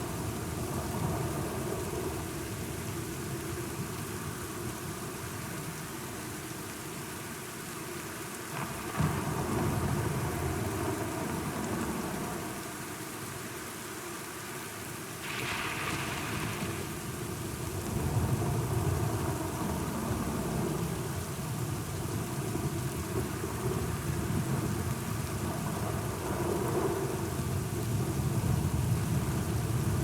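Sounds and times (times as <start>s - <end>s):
steady rain: 0.0s - 30.0s
thunder rumbling: 15.2s - 21.0s.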